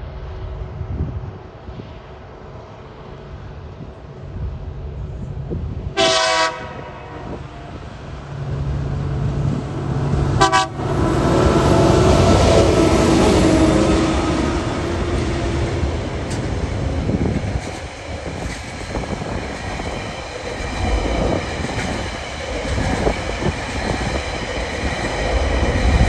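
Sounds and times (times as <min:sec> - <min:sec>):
diesel locomotive engines passing: 0:00.0 - 0:26.0
locomotive horn toots: 0:06.0 - 0:07.4, 0:10.3 - 0:14.2.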